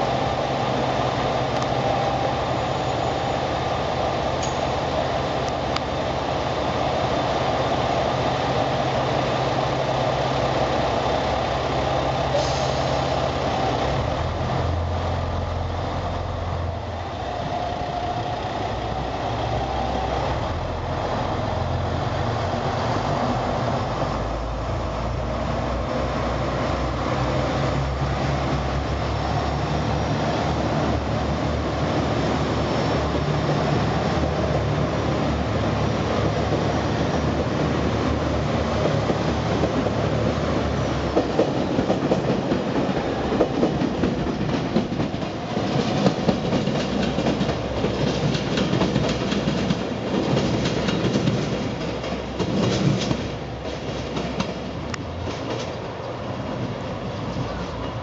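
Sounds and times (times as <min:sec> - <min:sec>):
diesel train engine humming: 0:00.0 - 0:58.0
wheels clicking over rail joints: 0:36.0 - 0:58.0.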